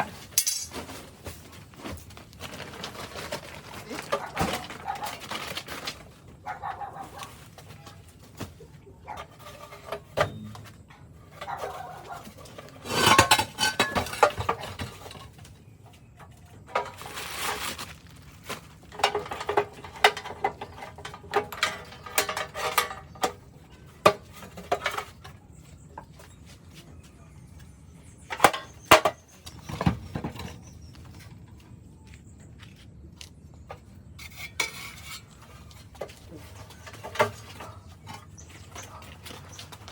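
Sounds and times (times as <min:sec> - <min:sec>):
metal tools clinking and clattering: 0:00.0 - 0:01.0, 0:11.4 - 0:15.4, 0:18.9 - 0:23.4
metal rattling and scraping: 0:00.0 - 0:06.4, 0:07.2 - 0:15.6, 0:16.3 - 0:25.6, 0:33.7 - 0:39.9.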